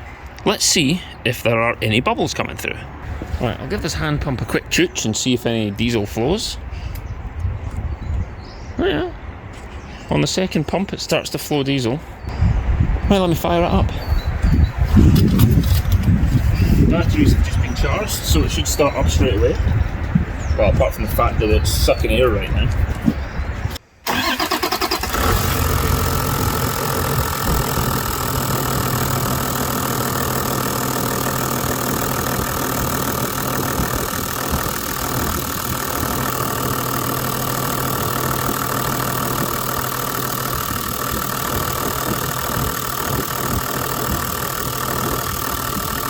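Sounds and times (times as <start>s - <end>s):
diesel engine idling: 24.1s - 46.0s.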